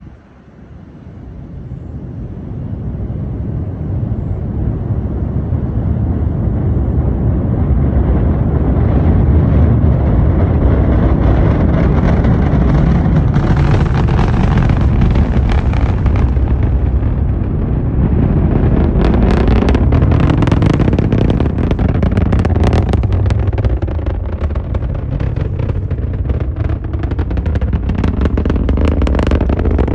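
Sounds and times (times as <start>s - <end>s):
rocket launch roar: 3.0s - 29.9s
sharp crackles: 9.5s - 29.9s.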